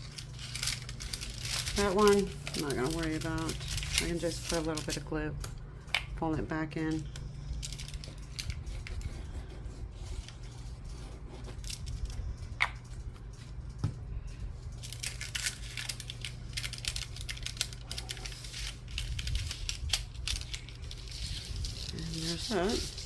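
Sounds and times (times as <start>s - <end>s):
paper rustling: 0.0s - 5.1s, 14.4s - 23.0s
steady low hum: 0.0s - 23.0s.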